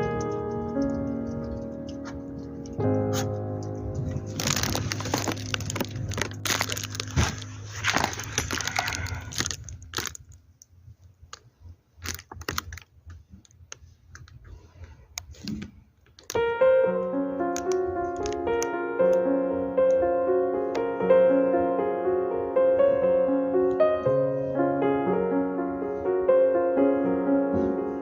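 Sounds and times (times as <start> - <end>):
sharp clicks and taps: 0.0 - 4.3
piano background music: 0.0 - 10.2, 16.3 - 28.0
rustling: 0.0 - 16.5.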